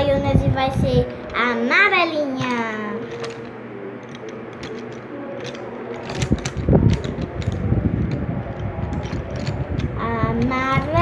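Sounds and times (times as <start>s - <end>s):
pencils clicking and rattling: 2.4s - 11.0s
handling and rubbing rumble: 4.1s - 11.0s.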